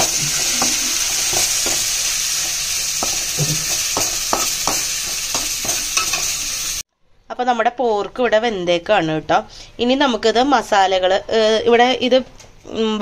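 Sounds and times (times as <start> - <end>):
onions sizzling in hot oil: 0.0 - 6.8.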